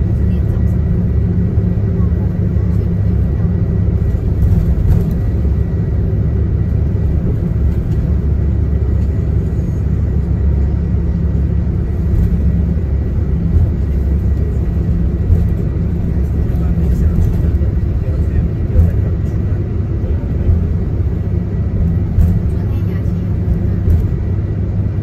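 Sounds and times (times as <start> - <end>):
coach engine and road noise: 0.0 - 25.0.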